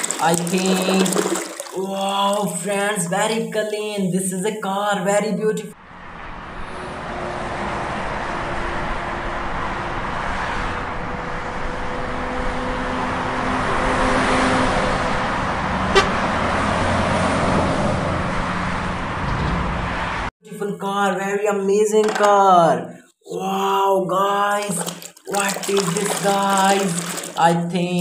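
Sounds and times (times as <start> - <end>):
car engine and road noise: 5.8 - 20.4.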